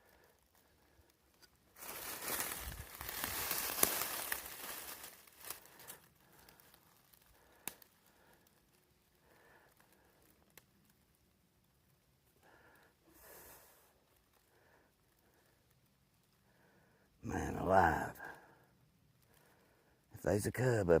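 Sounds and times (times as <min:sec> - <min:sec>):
close rustling and crackling: 0:00.0 - 0:16.6.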